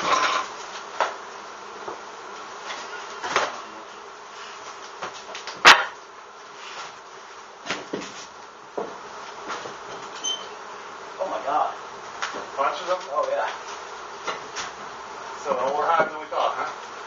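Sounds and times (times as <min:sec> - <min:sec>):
honeybees buzzing: 0:10.6 - 0:12.8.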